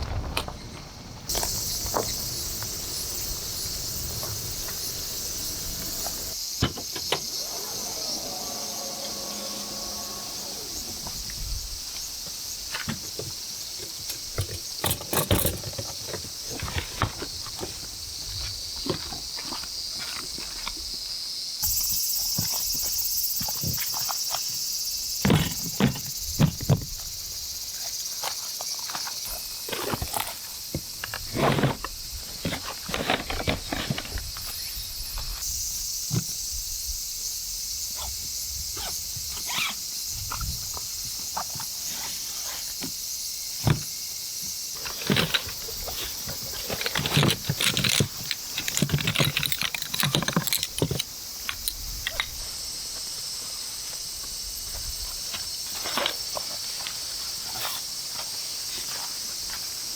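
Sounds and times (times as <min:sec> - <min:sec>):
insects chorus: 0:00.0 - 0:59.9
small clicks and knocks: 0:44.8 - 0:52.3.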